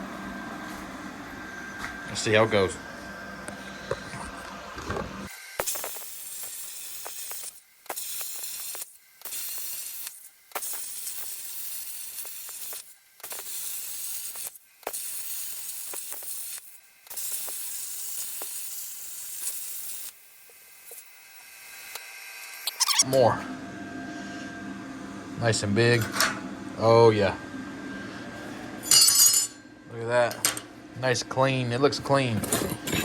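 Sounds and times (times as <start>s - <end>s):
plasma cutter hissing: 5.3s - 22.0s.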